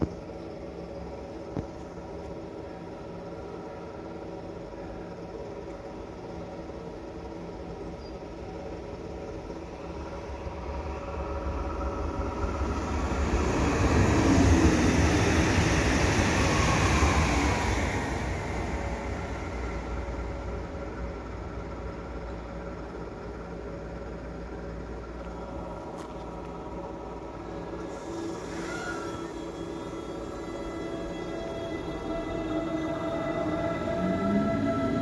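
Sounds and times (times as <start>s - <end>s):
electric train passing: 0.2s - 35.0s.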